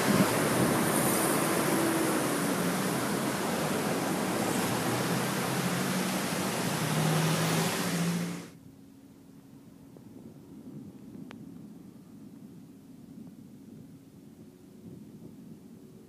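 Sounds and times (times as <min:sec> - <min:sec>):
heavy rain pouring: 0:00.0 - 0:08.5.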